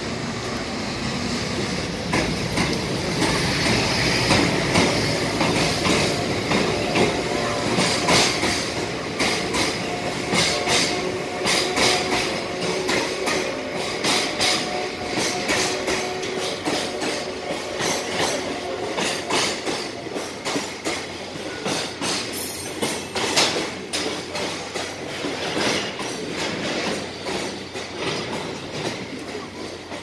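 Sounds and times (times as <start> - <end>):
train wheels rumbling: 0.0 - 30.0
wheels clacking over rail joints: 1.9 - 30.0.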